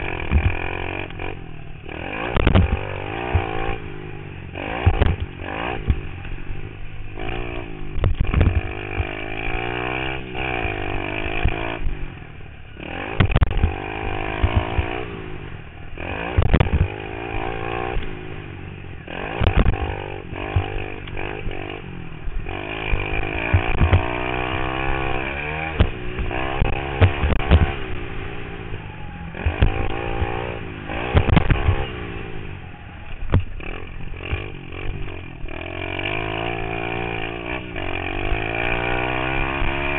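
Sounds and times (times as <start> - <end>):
pit bike engine revving: 0.0 - 39.9
short loud thumps: 2.4 - 3.6, 4.8 - 6.0.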